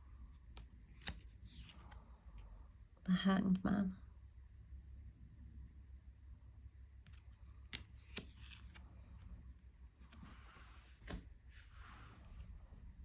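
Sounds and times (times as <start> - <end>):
cards clicking and tapping: 0.4 - 2.0, 7.0 - 8.8, 10.9 - 11.3
cards sliding rustle: 0.4 - 2.0, 7.0 - 9.3, 10.0 - 12.6.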